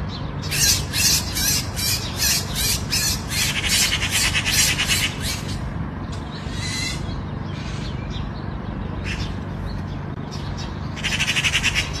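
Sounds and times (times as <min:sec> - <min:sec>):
bird squawking: 0:00.4 - 0:05.7, 0:06.4 - 0:08.0, 0:11.0 - 0:12.0.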